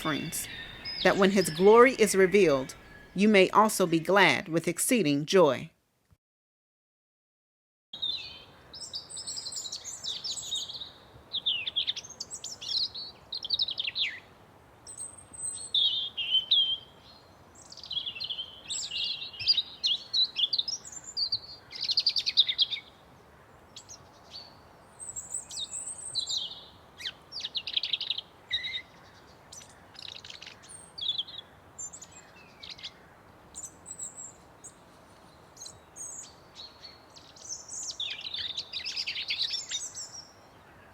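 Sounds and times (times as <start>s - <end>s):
songbirds singing and chirping: 0.0s - 5.6s, 8.0s - 40.9s
faint steady background hiss: 0.0s - 6.1s.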